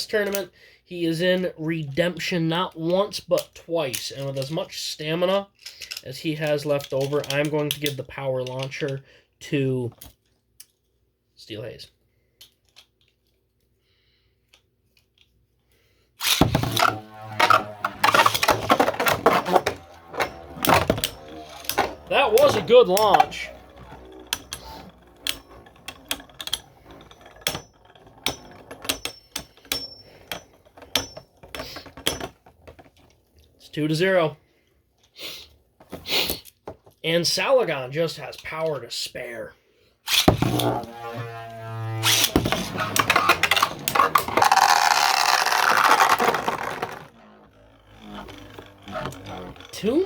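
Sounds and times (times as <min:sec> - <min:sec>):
spinning tops clacking: 0:16.2 - 0:30.4, 0:40.1 - 0:50.0
spinning tops clacking together: 0:40.1 - 0:47.1.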